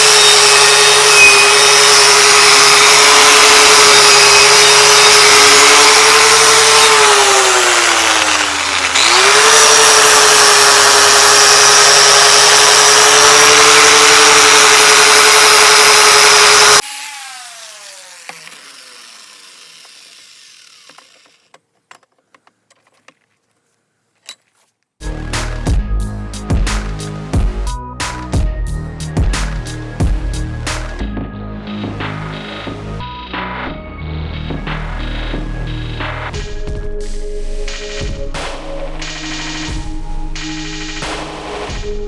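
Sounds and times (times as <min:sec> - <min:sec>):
power tool motor whine: 0:00.0 - 0:21.5.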